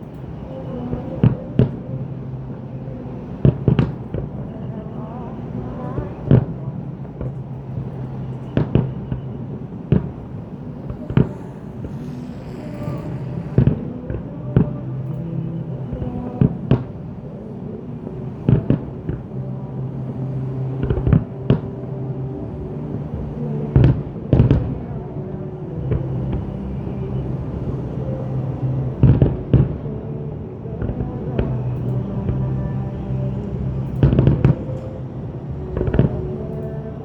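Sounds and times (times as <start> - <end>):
music with long held notes: 0.0 - 37.0
fireworks bursting with booms: 9.9 - 14.2.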